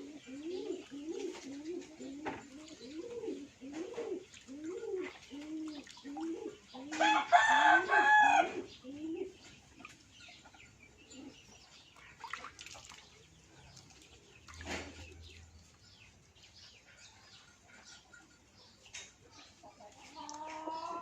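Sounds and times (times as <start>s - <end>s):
low cooing: 0.0s - 7.2s, 8.4s - 9.4s
faint hen clucking: 0.0s - 11.5s, 16.7s - 21.0s
rooster crowing: 7.0s - 8.7s.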